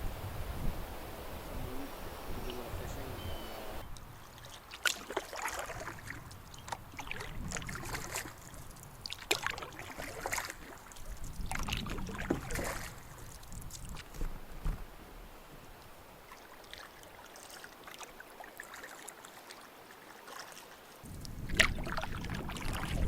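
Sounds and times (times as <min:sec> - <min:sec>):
paddle knocking canoe: 0:03.3 - 0:19.6, 0:20.2 - 0:23.0
paddle splashing water: 0:03.4 - 0:23.0.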